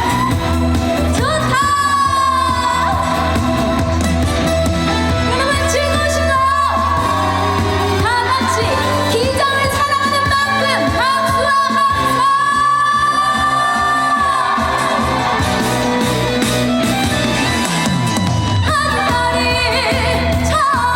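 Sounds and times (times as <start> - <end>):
backing music: 0.0 - 20.9
woman singing with vibrato: 1.1 - 4.0, 5.2 - 15.3, 18.6 - 20.9.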